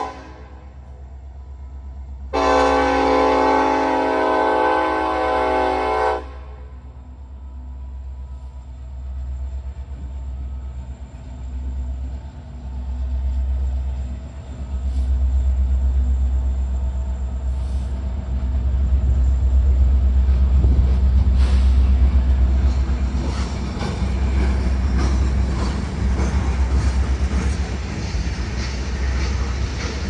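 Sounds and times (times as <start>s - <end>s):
locomotive horn chord: 0.0s - 0.8s, 2.3s - 6.9s
train rumbling past: 0.0s - 30.0s.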